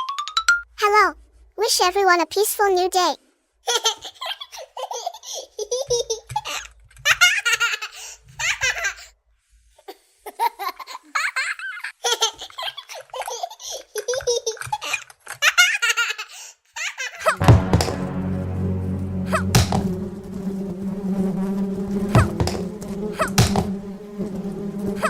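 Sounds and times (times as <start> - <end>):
small child giggling: 3.7 - 7.9, 10.3 - 16.3.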